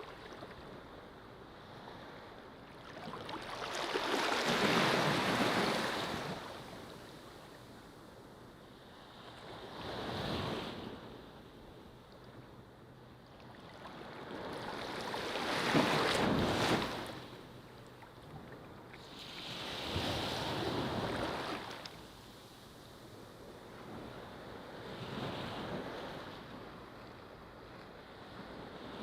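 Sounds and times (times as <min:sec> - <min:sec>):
ocean waves breaking on beach: 0:01.9 - 0:07.3, 0:13.8 - 0:17.6, 0:19.0 - 0:22.1.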